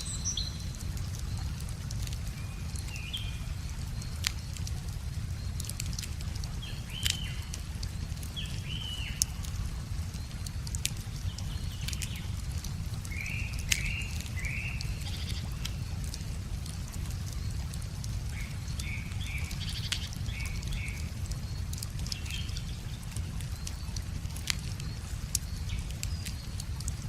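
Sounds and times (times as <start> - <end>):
bird chirping: 0.0 - 0.8
wood fire crackling: 0.0 - 27.0.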